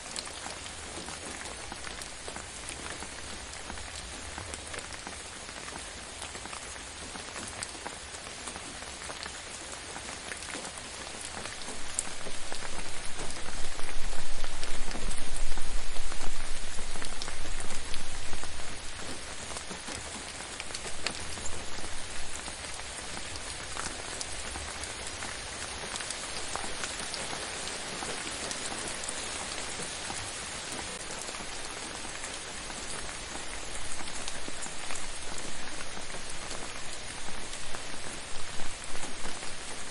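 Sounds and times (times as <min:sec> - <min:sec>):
rain patter: 0:00.0 - 0:39.9.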